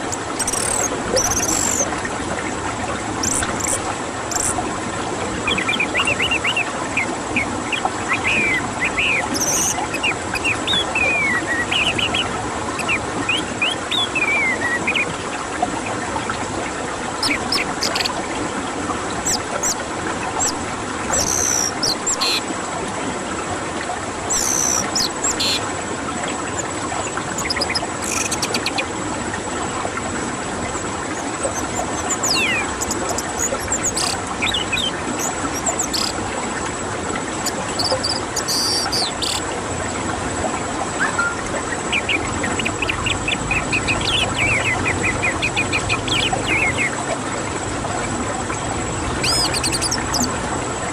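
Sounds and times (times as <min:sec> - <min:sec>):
songbird singing: 0:00.0 - 0:01.9, 0:03.2 - 0:04.6, 0:05.4 - 0:15.1, 0:17.2 - 0:18.2, 0:19.2 - 0:19.8, 0:20.4 - 0:22.5, 0:24.3 - 0:25.7, 0:26.6 - 0:28.9, 0:31.1 - 0:36.2, 0:37.4 - 0:39.5, 0:41.0 - 0:47.0, 0:49.1 - 0:50.4
faint constant high tone: 0:00.0 - 0:02.0, 0:03.2 - 0:18.4, 0:19.1 - 0:22.5, 0:24.2 - 0:29.1, 0:30.0 - 0:39.6, 0:40.9 - 0:50.9.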